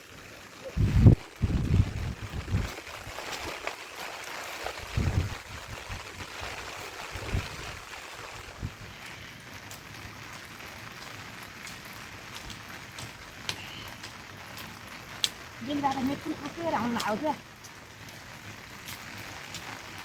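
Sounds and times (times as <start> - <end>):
steady rain: 0.0 - 20.0
sharp drips: 7.8 - 20.0.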